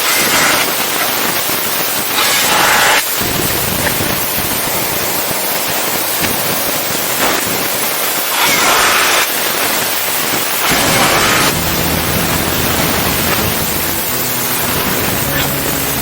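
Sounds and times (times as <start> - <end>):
bursts of hiss: 0.0 - 16.0
workshop machinery noise: 0.0 - 16.0
low steady hum: 10.7 - 16.0.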